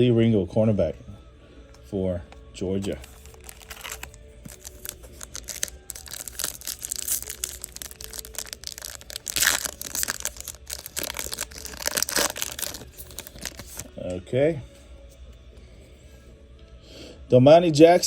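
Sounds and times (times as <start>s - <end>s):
trading cards clicking and rustling: 2.8s - 13.9s.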